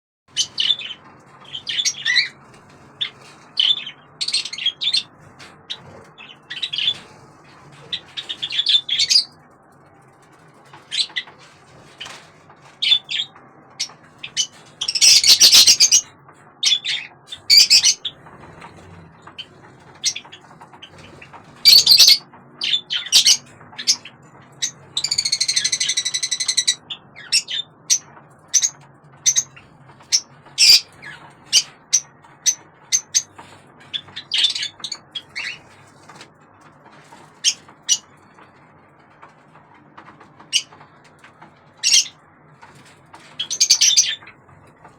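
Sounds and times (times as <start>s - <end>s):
budgerigar chirping: 14.4s - 16.0s, 16.6s - 18.1s, 21.6s - 24.0s, 30.1s - 31.7s
budgerigar harsh squawk: 14.9s - 16.0s, 21.7s - 23.4s.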